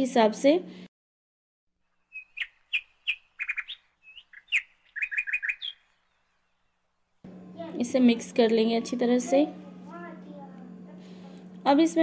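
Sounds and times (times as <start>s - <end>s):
small bird chirping: 1.9s - 6.9s.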